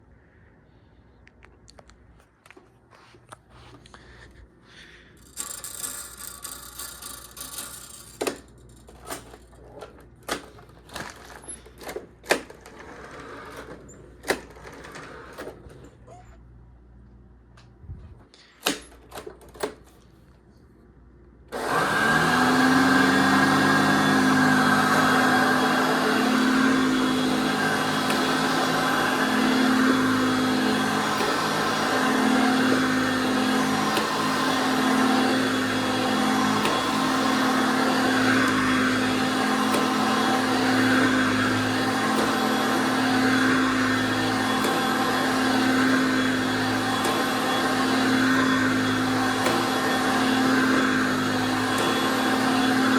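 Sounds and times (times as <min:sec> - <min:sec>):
vacuum cleaner motor humming: 0:05.2 - 0:15.8, 0:21.5 - 0:52.9.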